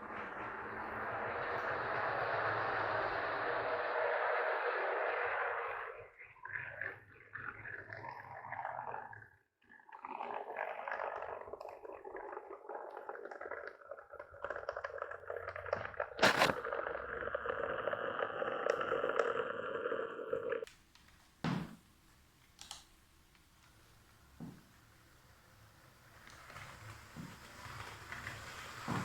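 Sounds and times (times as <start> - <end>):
electric motor and gears whirring: 15.5 - 20.7.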